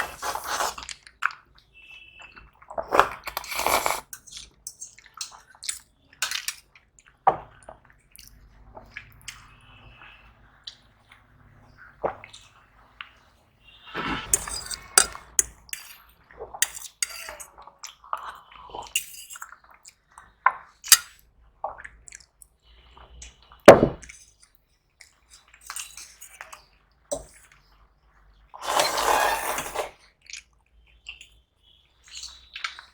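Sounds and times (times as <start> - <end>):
wet chewing and mouth noises: 0.0 - 1.5, 30.2 - 31.4, 32.0 - 32.9
utensil clinking on plate: 14.3 - 16.0, 16.6 - 17.5, 25.6 - 27.4.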